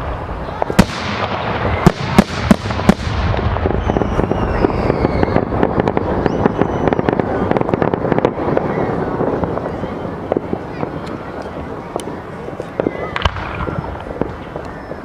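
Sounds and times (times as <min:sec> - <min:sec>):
firework bangs: 0:00.0 - 0:15.0
fireworks crackling: 0:00.0 - 0:15.0
firework whistles: 0:00.6 - 0:09.8, 0:12.7 - 0:15.0.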